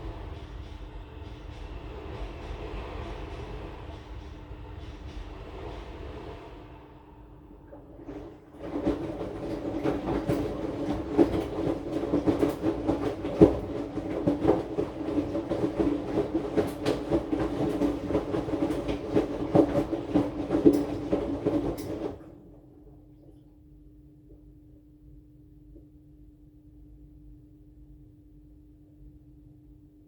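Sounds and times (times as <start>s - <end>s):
washing machine running: 0.0s - 23.6s
faint hum: 0.0s - 30.0s
knocks and rattles: 8.6s - 22.3s.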